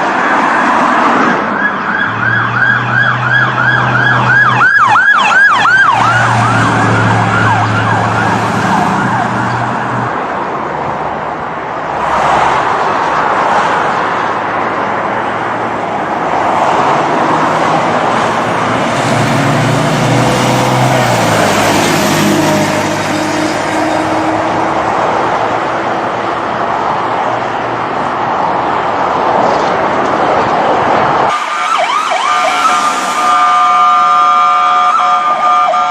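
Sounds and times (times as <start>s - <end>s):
car engine and road noise: 0.0s - 35.9s
police siren yelp: 1.2s - 10.0s, 31.3s - 35.9s.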